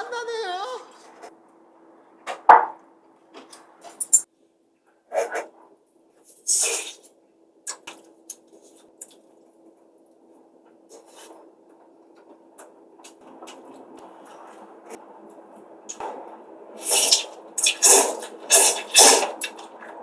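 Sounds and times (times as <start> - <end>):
noodle slurp: 16.8 - 19.7.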